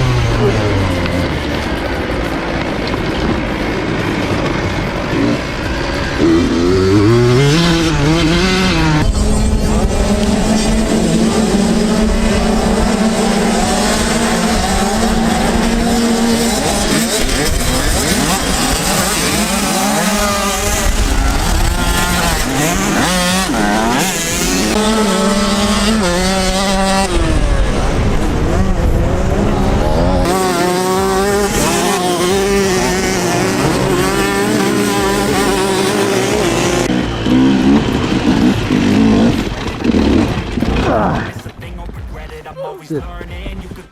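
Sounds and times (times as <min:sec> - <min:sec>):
off-road vehicle engines revving: 0:00.0 - 0:43.9.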